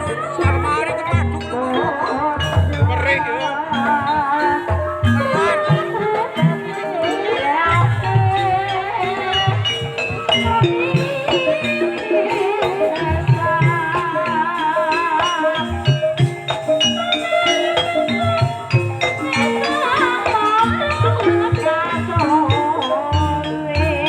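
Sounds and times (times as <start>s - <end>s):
struck metallophone notes: 0.0s - 24.0s
wavering melodic line: 0.0s - 24.0s.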